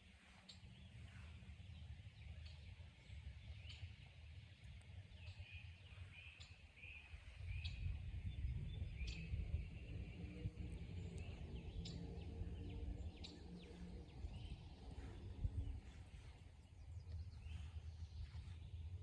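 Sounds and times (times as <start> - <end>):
faint hum-like tones: 0.0 - 19.0
songbirds chirping: 0.0 - 19.0
steady low rumble: 0.0 - 19.0.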